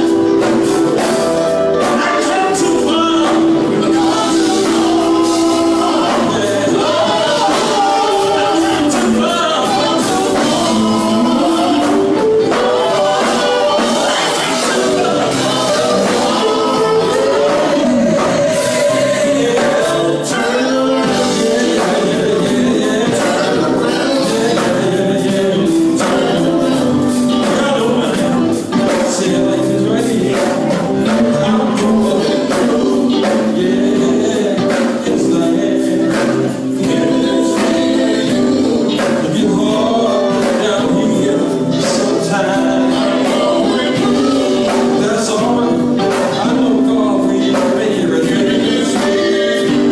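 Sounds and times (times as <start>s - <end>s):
steady percussive beat: 0.0s - 49.9s
vocal group singing gospel: 0.0s - 49.9s.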